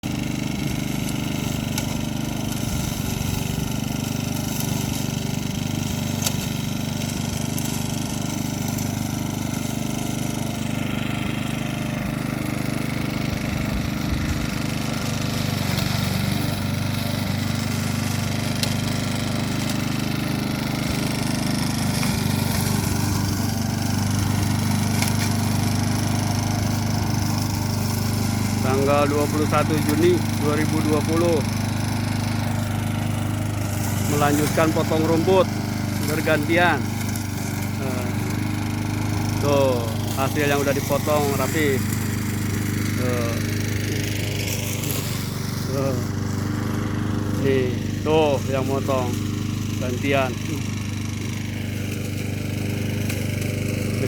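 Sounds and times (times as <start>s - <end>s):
lawn mower engine running: 0.0s - 54.0s.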